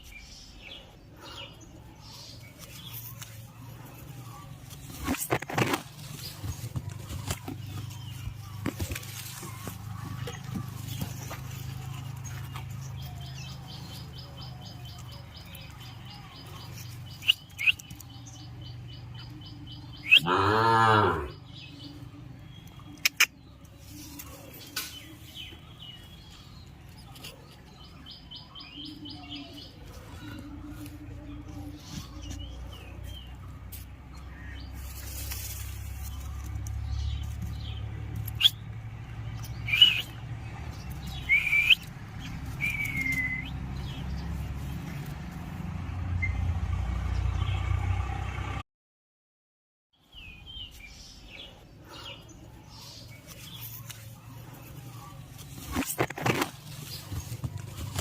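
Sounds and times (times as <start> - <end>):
small birds chirping: 0.0 - 47.9, 50.0 - 58.0
ticking bird trill: 17.0 - 18.8, 22.8 - 23.6, 39.4 - 40.2, 40.9 - 41.9
drawn-out animal call: 19.2 - 22.2.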